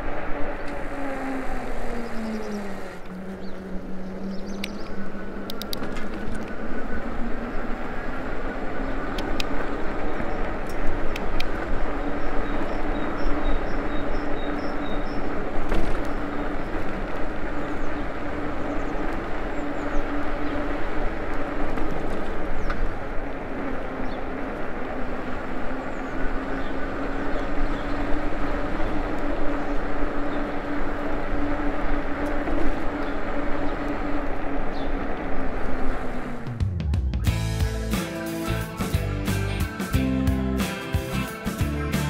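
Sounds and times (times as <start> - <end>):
tyres rolling: 15.1 - 42.0.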